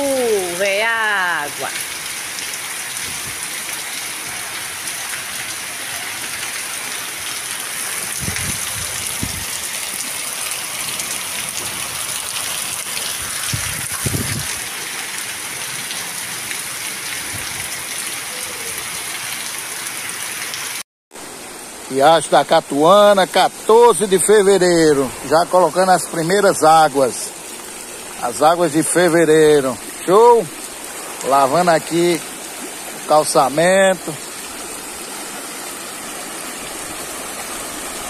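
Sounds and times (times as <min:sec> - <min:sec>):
heavy rain on cobblestones: 0:00.0 - 0:38.0.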